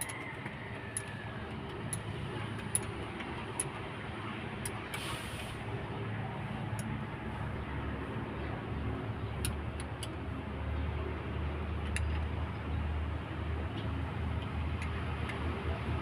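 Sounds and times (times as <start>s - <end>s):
hand tools clicking on metal: 0.0s - 3.9s.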